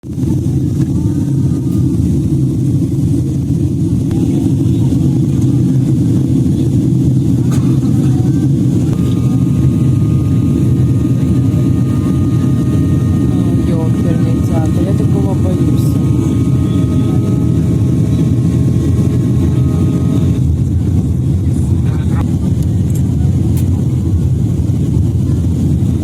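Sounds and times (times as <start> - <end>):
airliner cabin rumble: 0.0 - 26.0.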